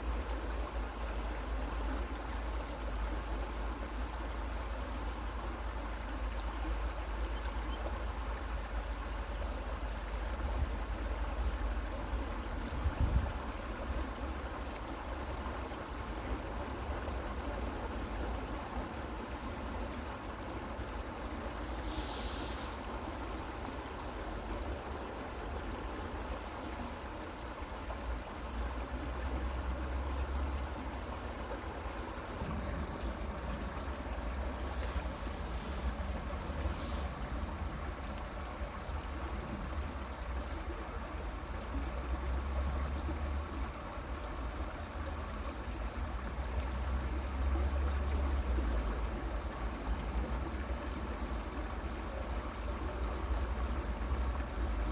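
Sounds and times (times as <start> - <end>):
constant low rumble: 0.0 - 54.9
creek flowing over stones: 0.0 - 54.9.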